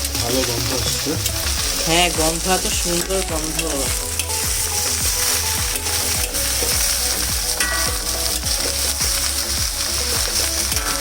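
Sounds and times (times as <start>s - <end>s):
rice sizzling in a pan: 0.0s - 11.0s.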